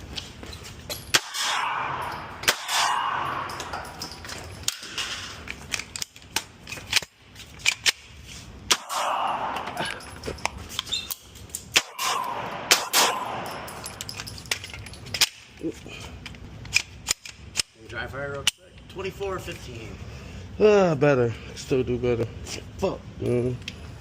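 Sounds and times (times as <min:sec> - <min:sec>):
gunshots: 0:01.1 - 0:03.4, 0:08.7 - 0:09.6, 0:11.7 - 0:13.5.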